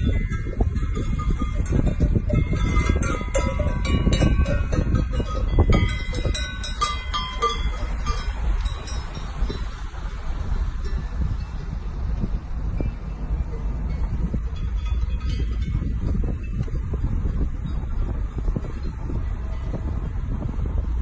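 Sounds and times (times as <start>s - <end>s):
small metal bells ringing: 0.0s - 9.7s, 12.8s - 16.7s
wind rumble: 0.0s - 21.0s.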